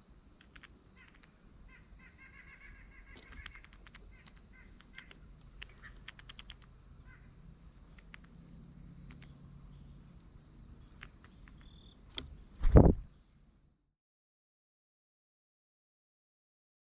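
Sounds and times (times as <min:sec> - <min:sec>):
crickets chirping: 0:00.0 - 0:13.9
sharp clicks: 0:00.4 - 0:01.4, 0:03.1 - 0:06.7, 0:07.9 - 0:08.4, 0:09.0 - 0:09.4, 0:10.9 - 0:12.9.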